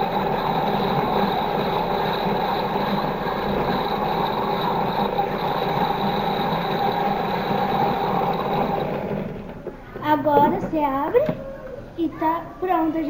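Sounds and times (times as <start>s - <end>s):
toy washing machine motor whirring: 0.0s - 9.8s.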